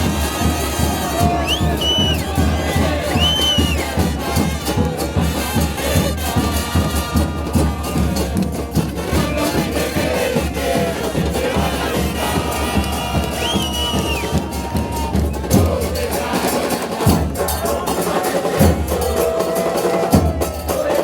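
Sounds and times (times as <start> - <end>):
brass instruments: 0.0 - 21.0
crowd of supporters singing: 0.0 - 21.0
drums: 0.0 - 21.0
high whistle-like glides: 1.3 - 2.3, 3.1 - 3.9.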